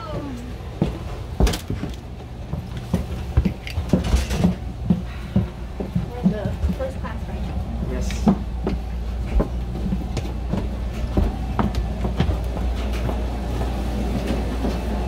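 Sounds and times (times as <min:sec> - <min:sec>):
train rumbling inside car: 0:00.0 - 0:15.0
knocks and rattles: 0:02.9 - 0:07.0.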